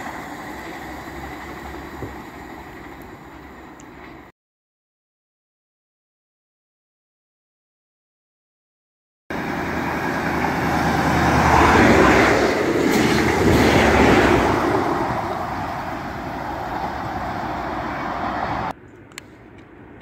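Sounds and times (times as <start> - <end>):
diesel train passing at speed: 0.0 - 4.3, 9.3 - 20.0.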